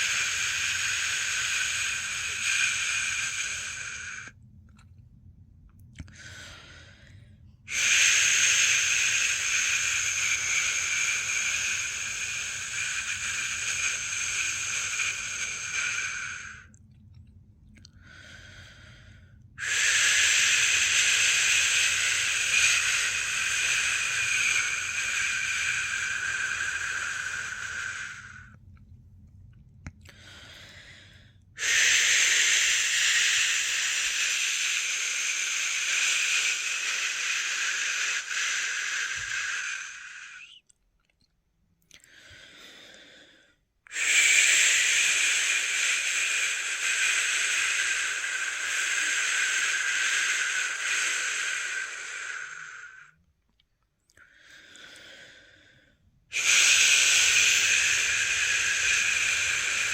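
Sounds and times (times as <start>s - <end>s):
person shushing: 0.0s - 4.3s, 7.7s - 16.7s, 19.6s - 28.5s, 31.6s - 40.6s, 43.9s - 53.1s, 56.3s - 59.9s.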